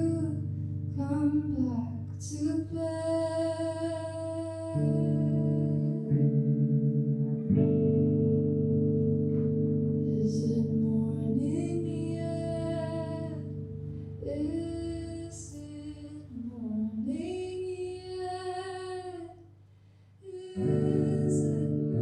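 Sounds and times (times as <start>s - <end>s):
guitar drone with echo: 0.0s - 19.2s, 20.4s - 22.0s
person singing long sliding notes: 20.2s - 22.0s.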